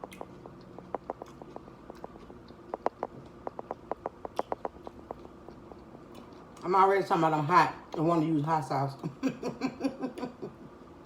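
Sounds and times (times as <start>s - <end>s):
chewing crunchy chips: 0.0s - 7.2s.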